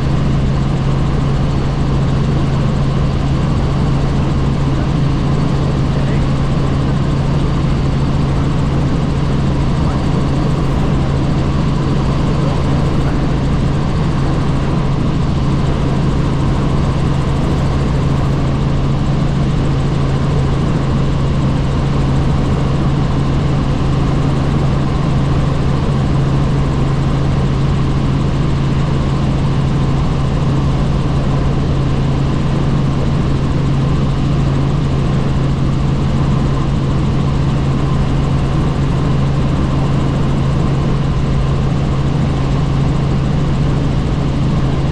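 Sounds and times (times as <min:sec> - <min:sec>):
helicopter engine and rotor drone: 0:00.0 - 0:44.9.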